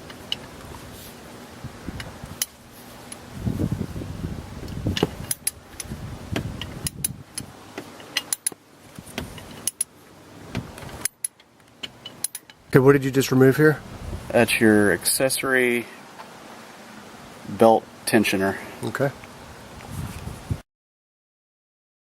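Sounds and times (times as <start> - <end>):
hand tools and metal parts clinking: 4.9 - 5.9, 6.6 - 12.7.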